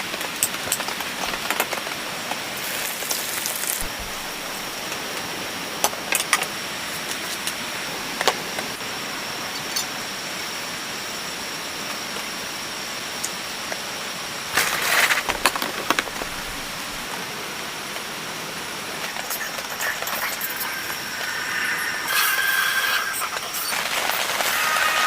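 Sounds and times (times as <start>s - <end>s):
steady rain falling: 0.0s - 25.0s
burst of crackling: 2.6s - 5.0s.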